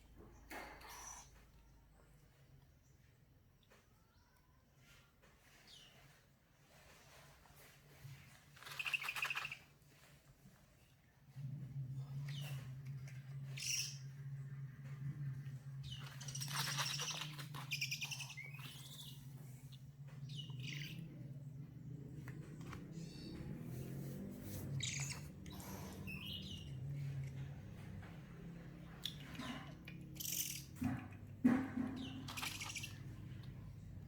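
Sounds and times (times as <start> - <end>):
steady low hum: 11.3 - 34.0.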